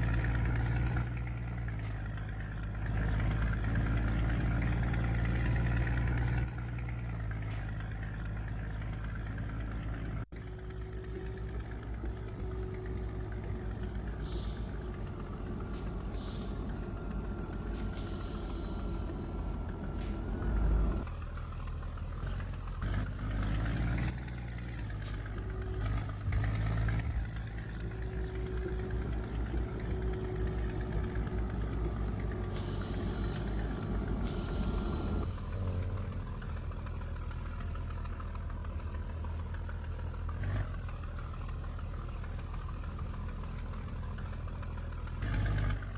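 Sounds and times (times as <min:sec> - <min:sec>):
diesel truck engine running: 0:00.0 - 0:45.9.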